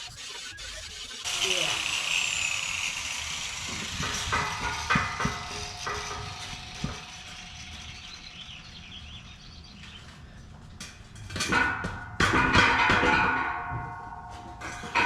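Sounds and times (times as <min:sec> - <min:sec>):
knocks on hollow steel tubing: 0:11.5 - 0:13.9.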